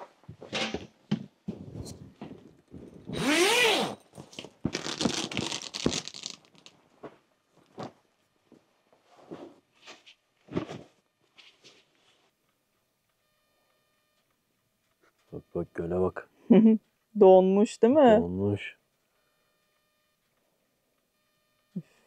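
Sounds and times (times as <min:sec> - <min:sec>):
tent zipper pulled: 0:03.1 - 0:04.0, 0:04.7 - 0:05.8
rustles and scuffs: 0:07.0 - 0:12.4.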